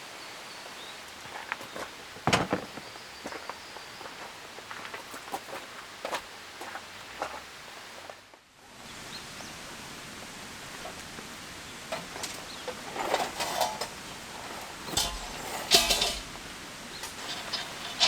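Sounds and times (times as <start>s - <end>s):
handling clicks and rustles: 2.2s - 3.0s, 11.9s - 18.0s
rain falling: 6.6s - 18.0s.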